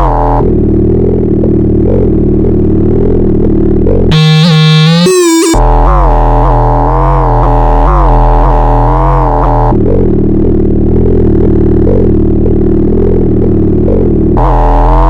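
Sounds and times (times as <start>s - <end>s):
synthesizer drone: 0.0s - 15.0s
synthesizer high pitch-bending tone: 4.1s - 9.8s.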